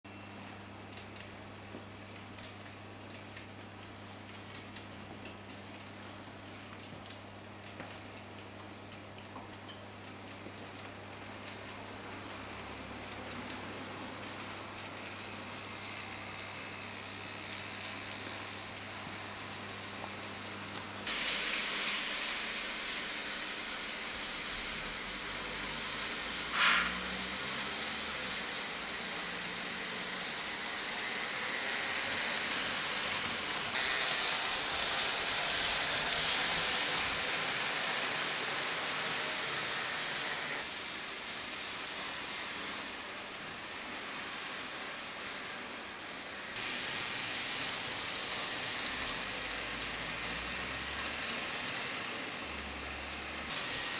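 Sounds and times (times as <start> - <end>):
model train running on track: 10.3 - 53.9
wheel squeal: 26.5 - 27.7.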